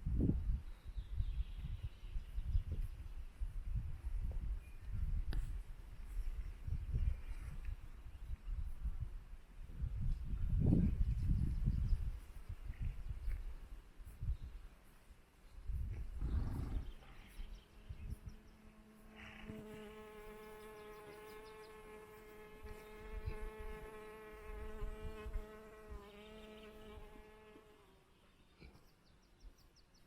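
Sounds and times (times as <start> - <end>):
flying insect buzzing: 18.2 - 28.1.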